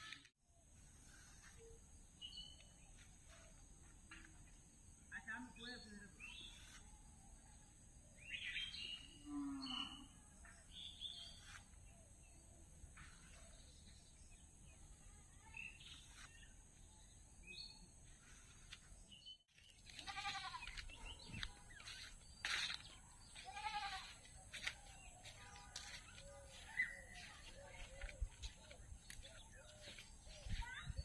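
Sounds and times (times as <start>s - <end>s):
faint bird chirps: 5.6s - 31.0s
animal bleat-like cry: 20.0s - 20.7s, 23.5s - 24.2s.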